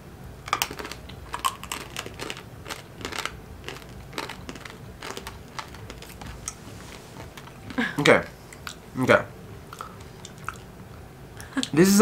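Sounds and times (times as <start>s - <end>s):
crunchy peanuts being chewed: 0.5s - 8.8s.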